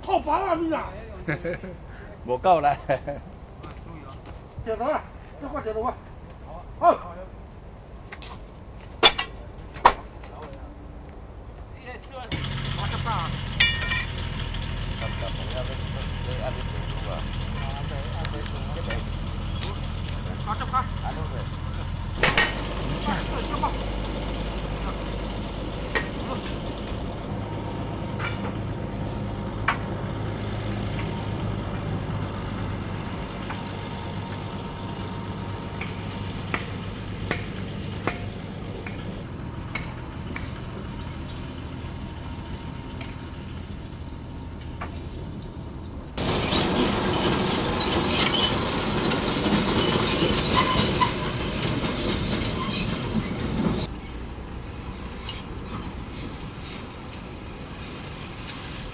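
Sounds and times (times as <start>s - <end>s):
rail car engine idling: 10.3s - 58.9s
tools clinking on steel: 13.6s - 14.2s
loud harsh noise: 46.2s - 53.6s.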